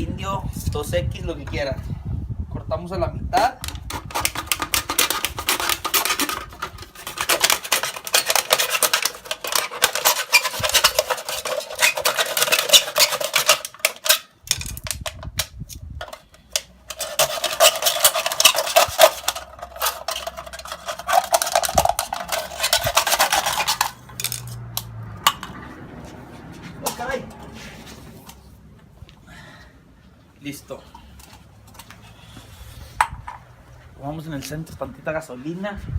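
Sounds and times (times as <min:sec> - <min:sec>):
blade scraping thin metal can: 0:03.7 - 0:15.0, 0:16.0 - 0:24.6.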